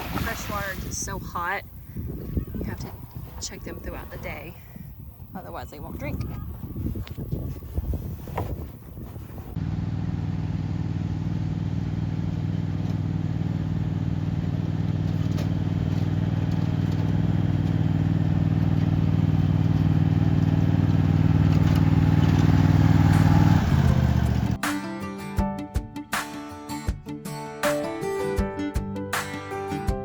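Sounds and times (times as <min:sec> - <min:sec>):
engine running: 0:08.7 - 0:24.6.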